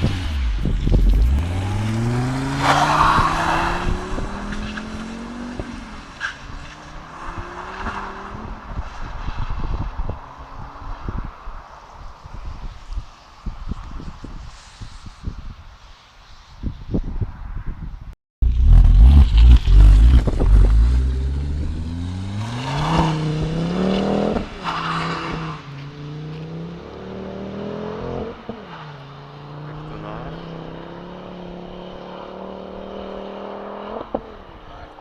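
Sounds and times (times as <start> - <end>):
car engine accelerating loudly: 0.0 - 6.0, 18.4 - 24.5.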